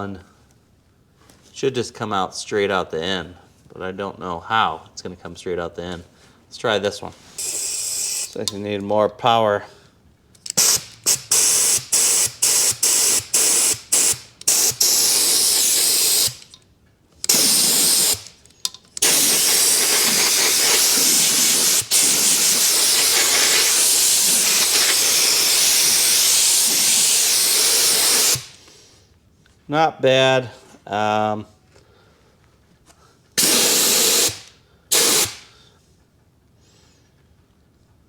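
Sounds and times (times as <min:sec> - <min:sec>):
air spray gun hissing: 0:07.3 - 0:08.4, 0:10.5 - 0:16.5, 0:17.2 - 0:18.4, 0:19.0 - 0:28.7, 0:33.4 - 0:35.5.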